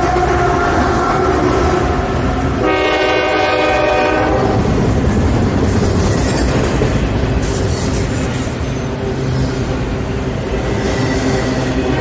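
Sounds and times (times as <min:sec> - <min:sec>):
train moving past on rails: 0:00.0 - 0:12.0
locomotive horn chord: 0:02.6 - 0:04.6.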